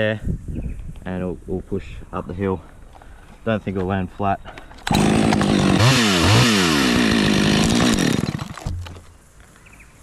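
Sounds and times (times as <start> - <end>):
chainsaw cutting wood: 4.8 - 9.0.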